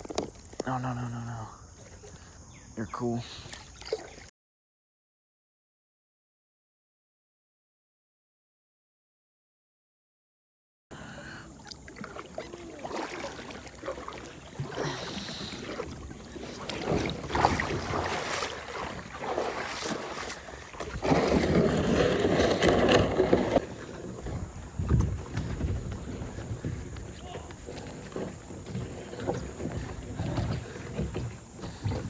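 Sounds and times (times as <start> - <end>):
water splashing in a stream: 3.4 - 4.3, 11.2 - 32.0.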